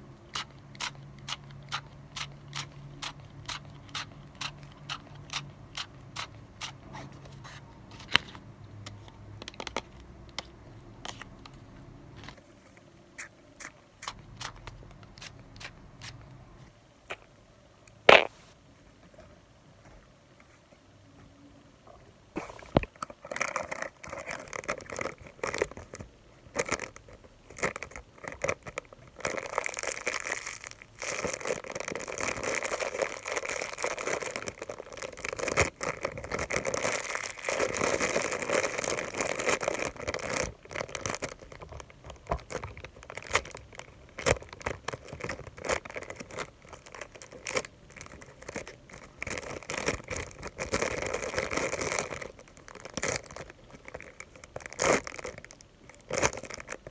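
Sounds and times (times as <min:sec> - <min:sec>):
crinkling and scratching: 0:00.3 - 0:16.7, 0:22.4 - 0:56.9.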